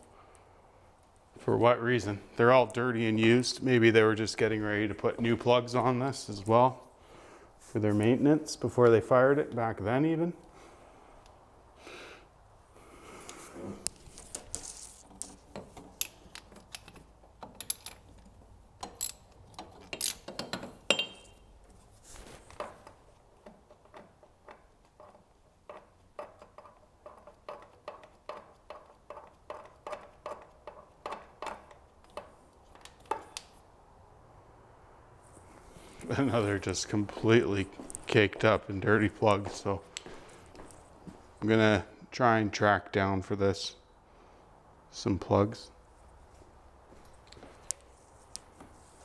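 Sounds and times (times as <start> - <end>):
metal tool clinks and knocks: 15.7 - 18.2, 18.8 - 21.5.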